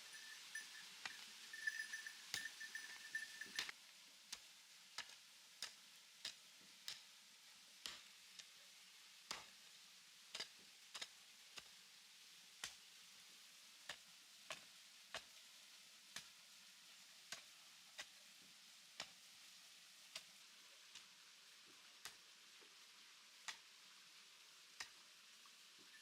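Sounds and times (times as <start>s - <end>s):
quiet hiss: 0.0s - 26.0s
faint sharp ticks: 4.3s - 7.1s, 10.4s - 11.7s.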